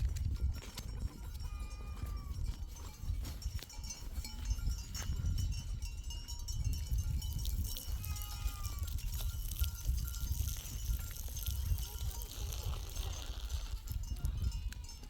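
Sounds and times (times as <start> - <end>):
livestock bleating: 1.2 - 2.4, 7.8 - 9.0, 11.8 - 15.0.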